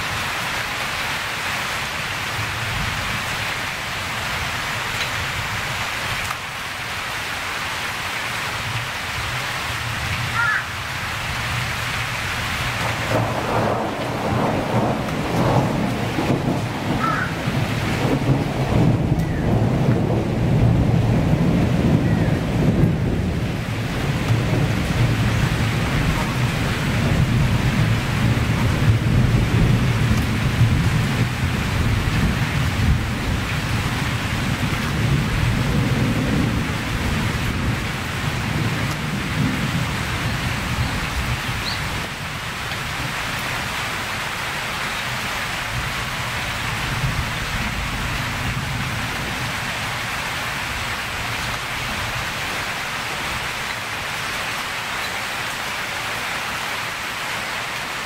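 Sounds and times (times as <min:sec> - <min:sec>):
steady rain falling: 0:00.0 - 0:58.0
rolling thunder rumble: 0:12.3 - 0:44.4, 0:45.5 - 0:53.5.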